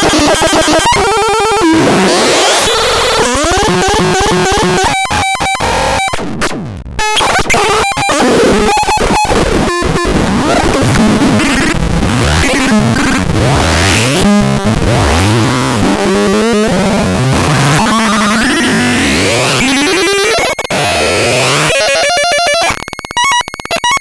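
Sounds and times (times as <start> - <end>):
harsh distorted synthesizer noise: 0.0 - 24.0
rapid stuttering clicks: 7.2 - 24.0.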